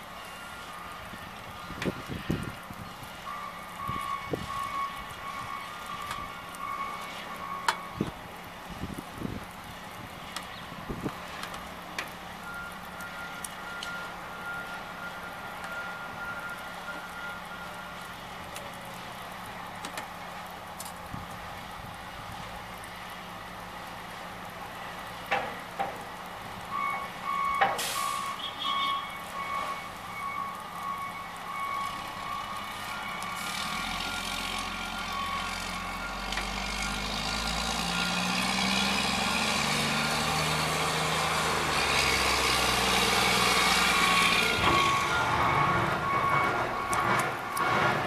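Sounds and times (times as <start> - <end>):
reversing alarm beeping: 0.2 - 2.6, 3.2 - 8.1, 12.4 - 18.1, 26.7 - 40.6, 43.3 - 48.0
vehicle engine: 32.0 - 48.0.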